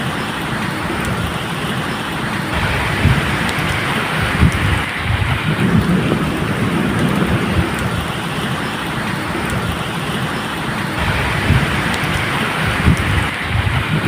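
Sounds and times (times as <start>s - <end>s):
steady rain: 0.0s - 14.0s
low rumbling thunder: 2.5s - 10.1s, 11.0s - 14.0s.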